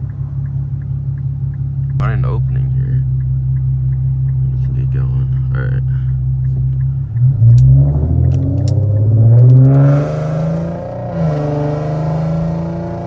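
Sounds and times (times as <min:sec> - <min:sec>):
loud car engine accelerating: 0:06.1 - 0:13.0.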